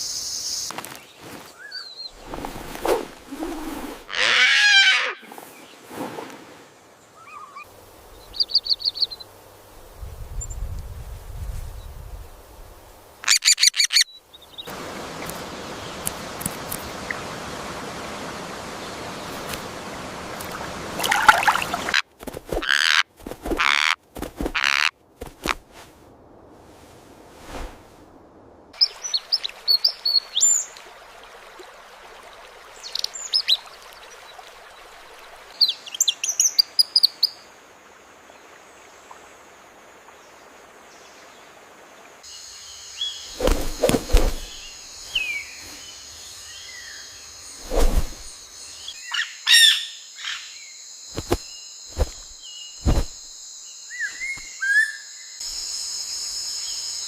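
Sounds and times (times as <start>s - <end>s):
even hiss: 2.2s - 7.1s, 42.2s - 49.0s, 51.0s - 54.4s
birds chirping: 7.0s - 9.3s, 42.7s - 50.5s.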